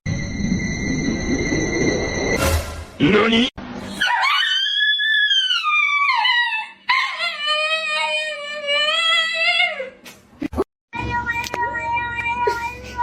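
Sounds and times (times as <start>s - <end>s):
dog howling: 4.0s - 9.9s.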